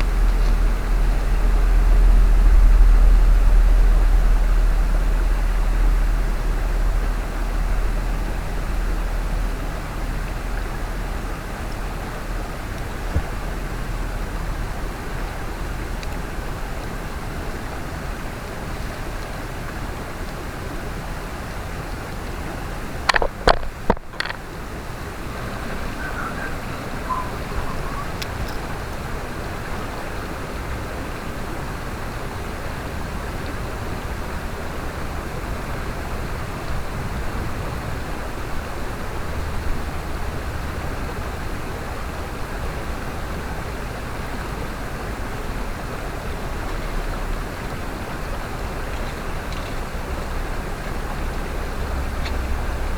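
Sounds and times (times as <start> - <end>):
low rumble: 0.0 - 16.6
stream rushing over rocks: 0.0 - 52.9.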